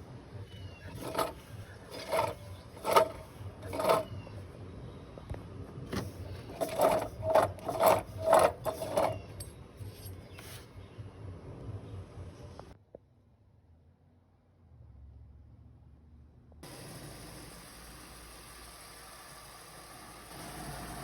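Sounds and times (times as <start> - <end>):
mechanical rattling bursts: 0.9 - 4.1, 6.3 - 9.2.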